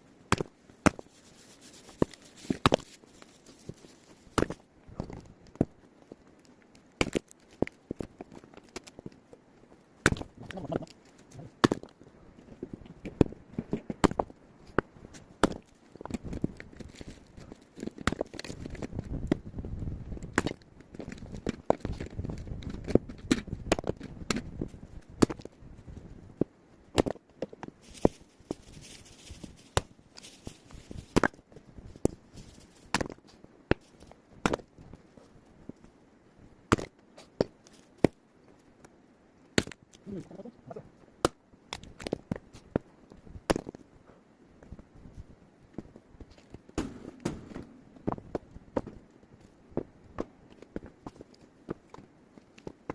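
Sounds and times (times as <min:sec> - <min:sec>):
axe chopping firewood: 0:00.3 - 0:01.0, 0:07.0 - 0:07.2, 0:10.0 - 0:10.3, 0:15.4 - 0:15.6, 0:34.4 - 0:34.6, 0:36.7 - 0:36.9, 0:39.6 - 0:39.8.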